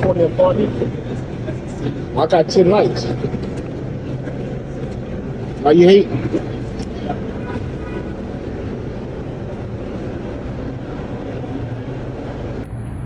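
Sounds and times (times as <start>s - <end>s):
subway station rumble and hum: 0.0s - 13.0s.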